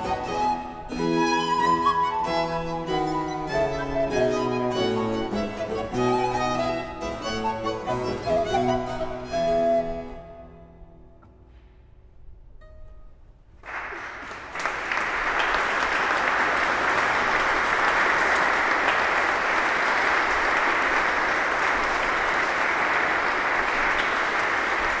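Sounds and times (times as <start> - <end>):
last music notes: 0.0 - 13.0
audience applauding: 13.6 - 25.0.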